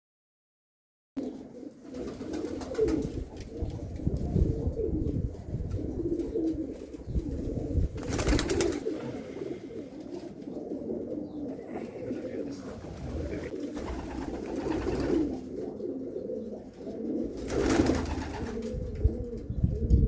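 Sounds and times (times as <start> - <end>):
pigeon cooing: 1.2 - 20.0
noisy rustle: 12.1 - 15.5.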